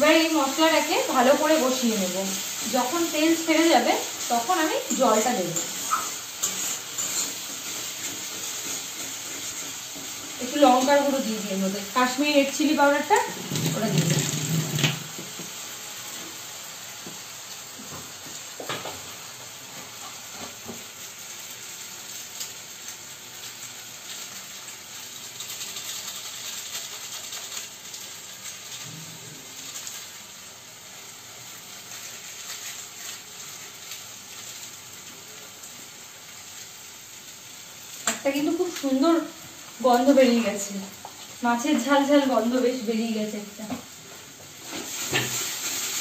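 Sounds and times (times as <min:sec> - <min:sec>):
paste sizzling in oil: 0:00.0 - 0:46.0
spatula scraping a wok: 0:02.3 - 0:11.3.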